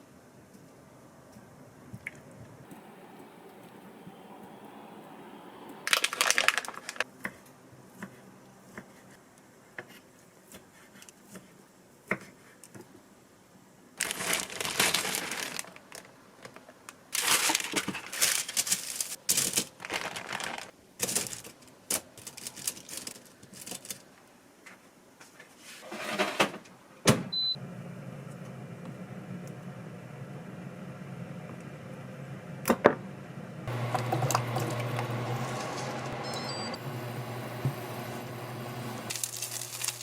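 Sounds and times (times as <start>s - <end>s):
packaging crinkling and rustling: 5.8s - 7.1s, 14.0s - 24.2s, 39.1s - 40.0s.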